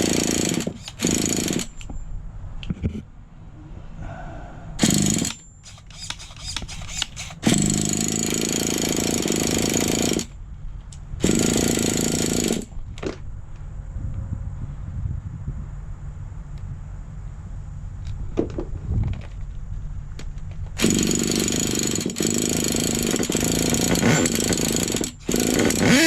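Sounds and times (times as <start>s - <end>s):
small nitro engine running: 20.8s - 26.0s.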